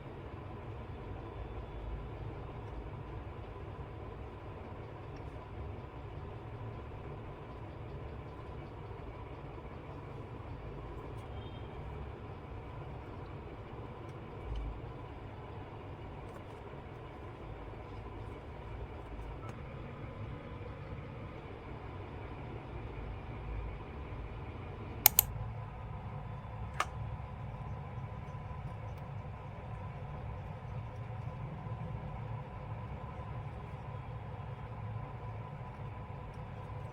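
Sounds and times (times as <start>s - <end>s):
sharp clicks: 25.1s - 25.3s.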